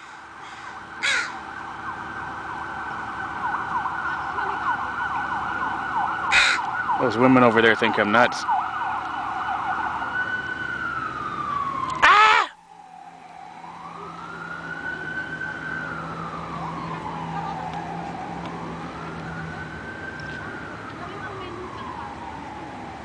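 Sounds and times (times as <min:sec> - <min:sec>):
emergency siren wailing: 0:00.0 - 0:23.0
person shouting: 0:12.0 - 0:12.6.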